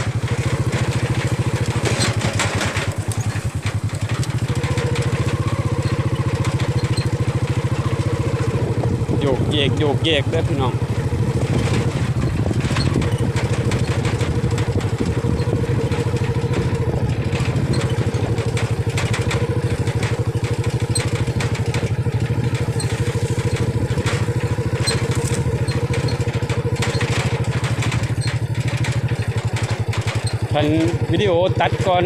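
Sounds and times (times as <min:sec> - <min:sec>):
small motorcycle engine running: 0:00.0 - 0:32.0.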